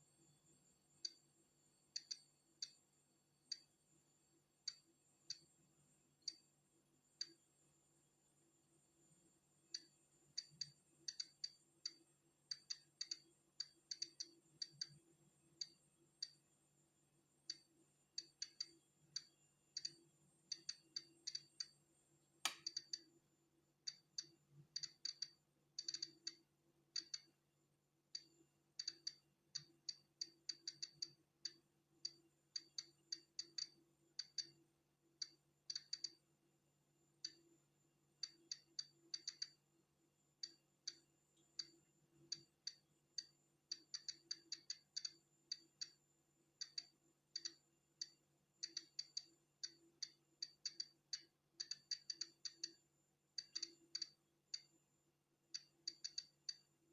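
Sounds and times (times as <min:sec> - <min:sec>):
faint steady hum: 0:00.0 - 0:56.9
geiger counter clicking: 0:09.8 - 0:15.0, 0:17.5 - 0:21.8, 0:22.5 - 0:23.1, 0:23.9 - 0:27.4, 0:28.2 - 0:34.6, 0:35.2 - 0:36.2, 0:38.2 - 0:39.6, 0:41.6 - 0:46.0, 0:46.6 - 0:52.8, 0:53.4 - 0:54.7, 0:55.5 - 0:56.7.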